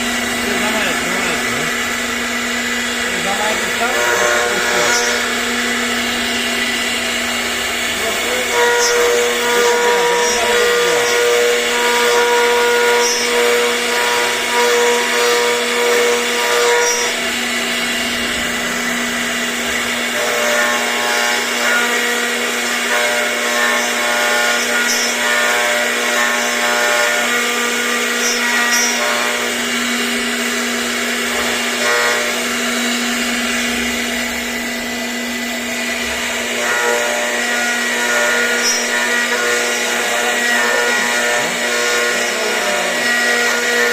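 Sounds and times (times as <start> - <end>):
spindle whine: 0.0 - 20.6
higher motor tones: 0.0 - 22.7, 25.4 - 43.9.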